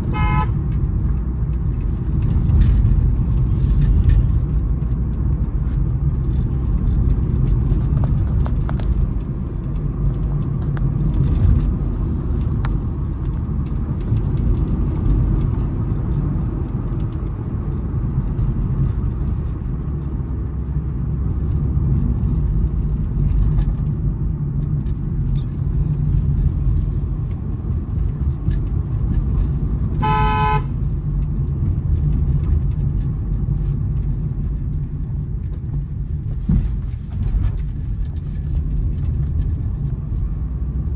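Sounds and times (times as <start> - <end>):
car horn honk: 0.0 - 0.6, 30.0 - 30.8
car road and engine rumble: 0.0 - 40.9.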